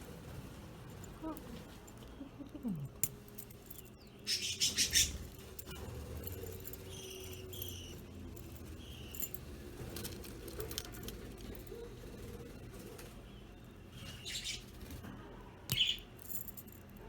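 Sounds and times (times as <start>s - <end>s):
budgerigars chirping: 4.2s - 5.3s, 14.0s - 14.7s.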